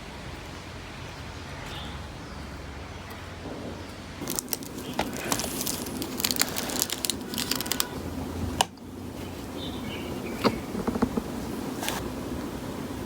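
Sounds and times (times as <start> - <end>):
crinkling and rustling: 3.8 - 9.6, 10.2 - 12.1.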